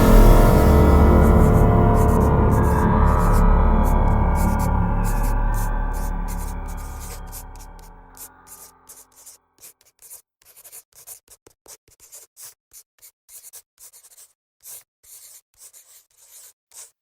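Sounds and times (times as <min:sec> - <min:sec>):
pen scratching on paper: 0:06.3 - 0:16.9.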